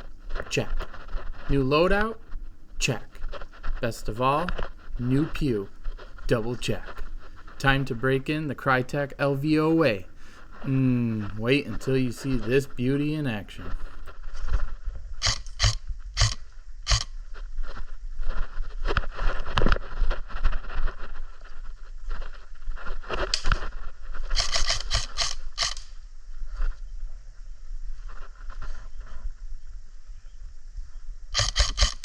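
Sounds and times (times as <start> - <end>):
gear scraping and rustling: 0.0 - 29.4, 31.4 - 32.0
sharp clicks and knocks: 31.4 - 32.0.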